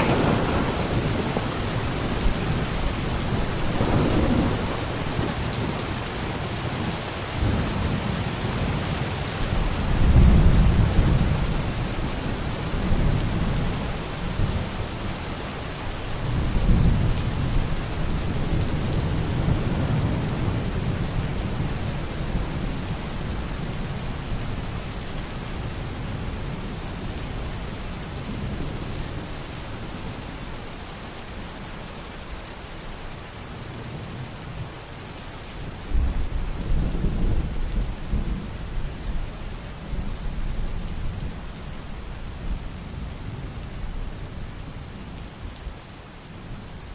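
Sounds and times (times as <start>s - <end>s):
thunder rumbling: 0.0s - 8.9s
steady rain falling: 0.0s - 46.9s.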